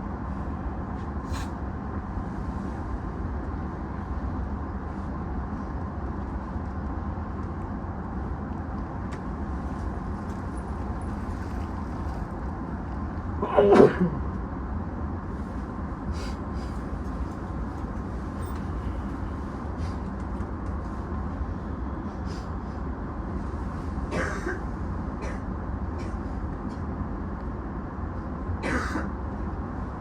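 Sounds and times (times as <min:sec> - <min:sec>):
train carriage hum: 0:00.0 - 0:30.0
person coughing: 0:13.4 - 0:14.2, 0:24.1 - 0:24.6, 0:28.6 - 0:29.1
person sneezing: 0:13.4 - 0:14.2.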